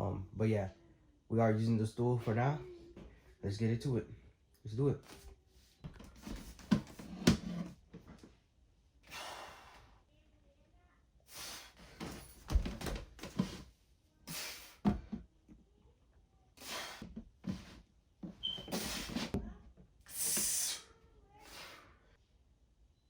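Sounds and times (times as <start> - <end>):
hard breathing: 9.0 - 10.0, 16.6 - 17.8
equipment thuds and knocks: 12.0 - 13.6.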